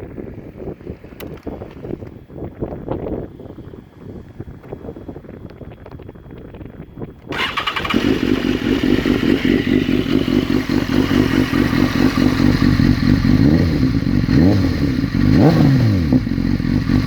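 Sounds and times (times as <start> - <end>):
motorcycle starter cranking: 7.3 - 12.4
motorcycle engine idling: 7.3 - 17.0.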